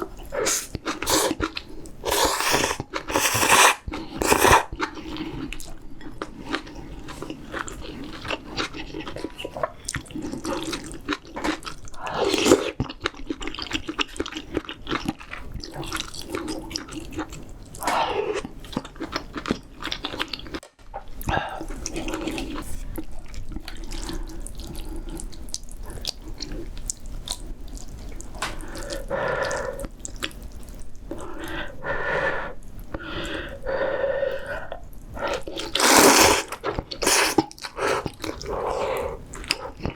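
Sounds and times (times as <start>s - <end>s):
wet chewing: 0.0s - 31.7s, 34.6s - 39.9s
slurping noodles: 0.3s - 5.4s, 35.2s - 39.8s.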